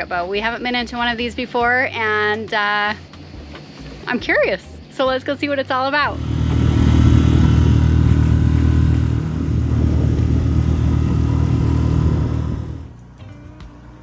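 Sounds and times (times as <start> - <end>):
boat engine running: 6.0 - 13.0.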